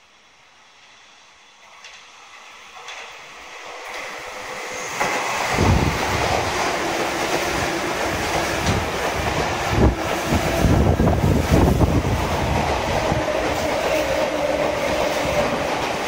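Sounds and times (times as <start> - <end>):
train wheels rushing on rail: 0.0 - 16.0
clacks at rail joints: 1.6 - 2.1, 2.7 - 3.2, 6.2 - 16.0.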